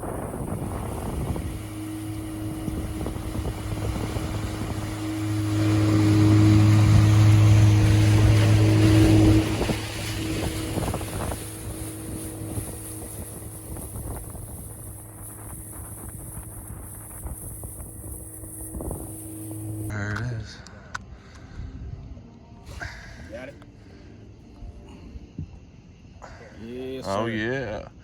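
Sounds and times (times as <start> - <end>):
wind on microphone: 0.0 - 19.9
outboard motor running: 0.0 - 20.0.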